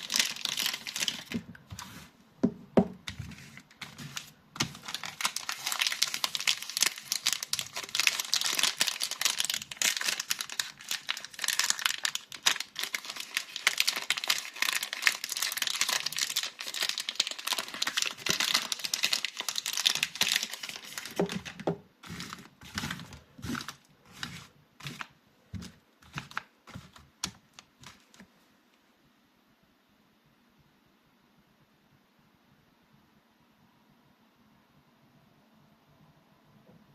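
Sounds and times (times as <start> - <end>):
packaging crinkling and tearing: 0.0 - 2.0, 3.1 - 28.2.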